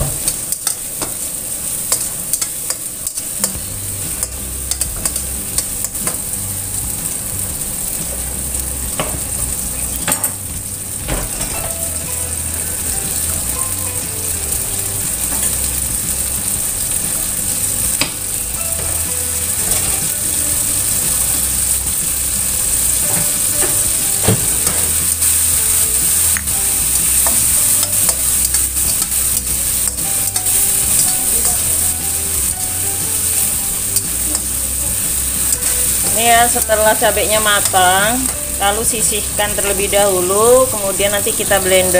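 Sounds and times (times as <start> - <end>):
metal turner scraping a wok: 0.0 - 6.3, 15.0 - 39.4
food sizzling in hot oil: 0.0 - 41.9.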